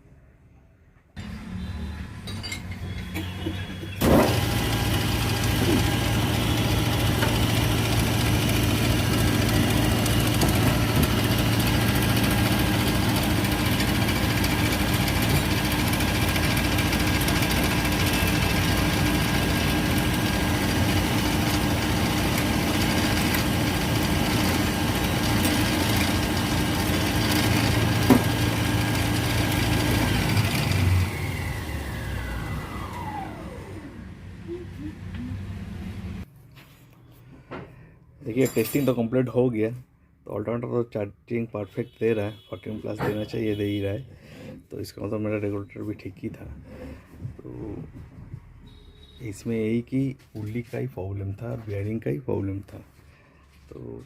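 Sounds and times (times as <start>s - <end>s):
alternator whining: 3.2s - 36.2s.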